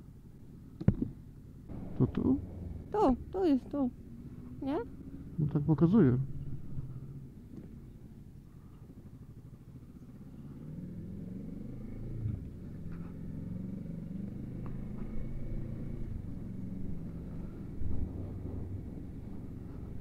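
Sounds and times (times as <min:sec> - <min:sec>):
motorcycle engine pulling away: 0:04.0 - 0:08.2, 0:08.9 - 0:20.0.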